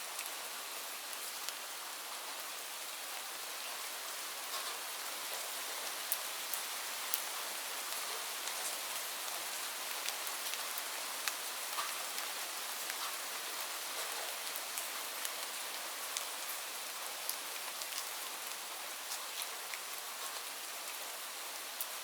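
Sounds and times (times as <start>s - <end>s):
steady rainfall: 0.0s - 22.0s
raindrops tapping on surfaces: 4.5s - 5.4s.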